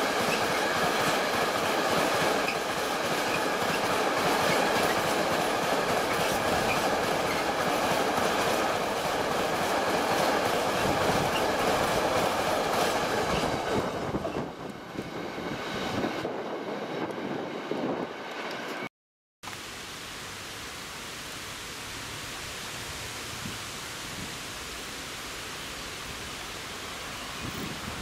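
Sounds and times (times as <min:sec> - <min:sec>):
freight train rolling past: 0:00.0 - 0:18.9.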